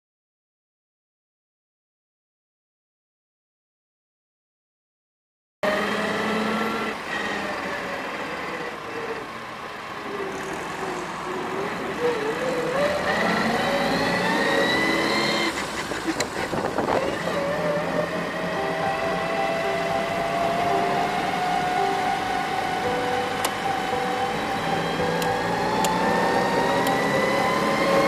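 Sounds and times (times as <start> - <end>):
car engine accelerating: 5.6 - 28.0.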